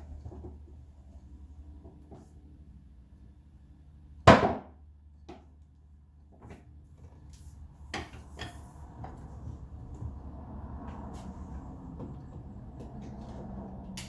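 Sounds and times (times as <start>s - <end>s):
loud sharp knock: 4.3s - 4.7s.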